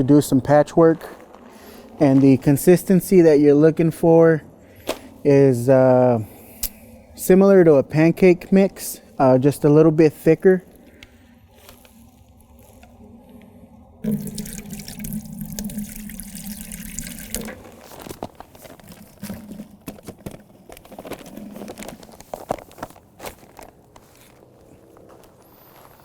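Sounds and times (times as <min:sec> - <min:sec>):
liquid pouring into bucket: 0:14.0 - 0:20.4
thick slurry stirred and scraped: 0:17.3 - 0:23.0.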